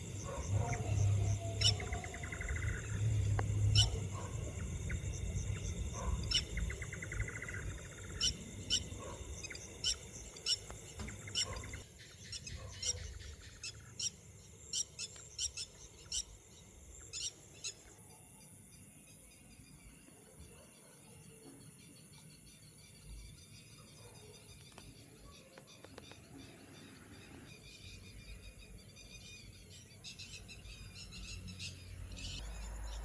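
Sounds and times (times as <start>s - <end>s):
bird trilling: 0.3s - 5.1s.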